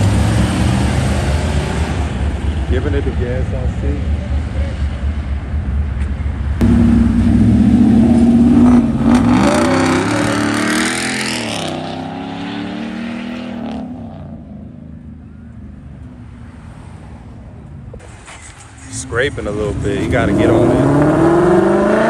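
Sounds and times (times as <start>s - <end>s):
car engine revving and accelerating: 0.0s - 2.3s, 6.6s - 14.5s, 19.2s - 22.0s.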